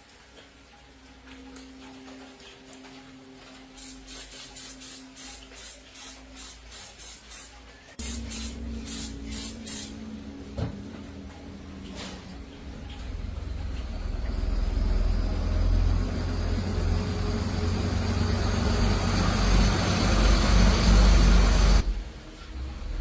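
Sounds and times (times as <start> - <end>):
short bursts of spray hiss: 3.8 - 10.0
low steady hum: 7.9 - 23.0.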